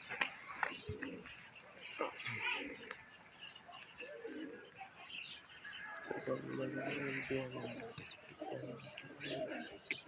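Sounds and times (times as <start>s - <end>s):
pigeons cooing: 0.0s - 3.2s, 3.8s - 10.0s.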